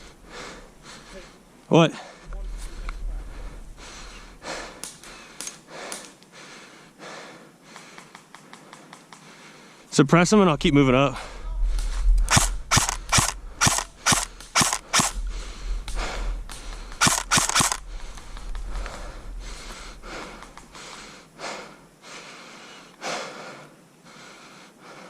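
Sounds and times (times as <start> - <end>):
airsoft rifle shots: 12.2 - 15.2, 16.9 - 17.9
distant gunshots: 12.2 - 15.2, 16.5 - 18.2.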